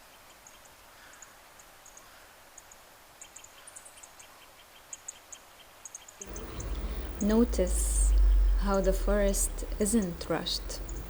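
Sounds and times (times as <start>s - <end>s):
small birds chirping: 0.0s - 11.0s
soft hiss: 6.2s - 11.0s.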